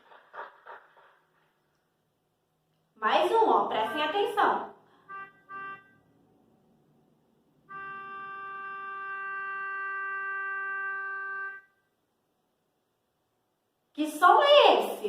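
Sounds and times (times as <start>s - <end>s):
car horn long blast: 5.0s - 6.1s, 7.6s - 11.9s.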